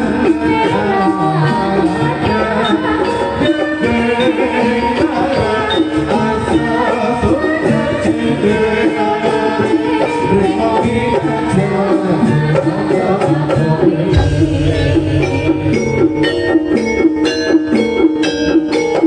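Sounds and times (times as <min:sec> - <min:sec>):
hand drum strokes: 0:12.2 - 0:19.0
metallophones playing melody: 0:14.1 - 0:19.0
deep low gong note: 0:14.2 - 0:17.3.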